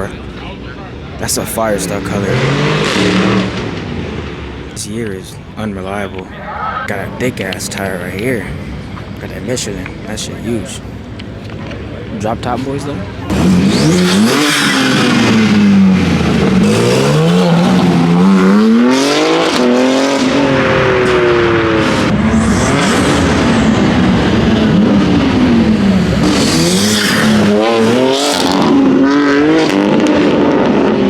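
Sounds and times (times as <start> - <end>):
car engine revving hard: 1.6 - 4.4, 13.2 - 31.0.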